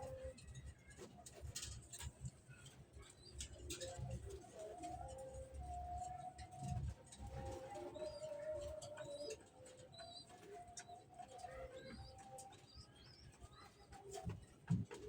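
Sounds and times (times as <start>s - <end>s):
pigeons cooing: 7.2s - 15.0s.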